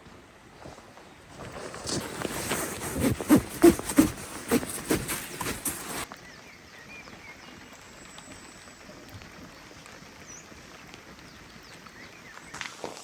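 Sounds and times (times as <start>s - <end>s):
rain hiss: 6.0s - 13.0s.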